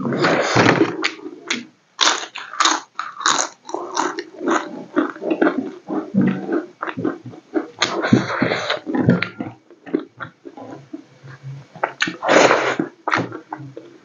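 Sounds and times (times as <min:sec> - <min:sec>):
chewing with wet mouth sounds: 0:01.5 - 0:12.2.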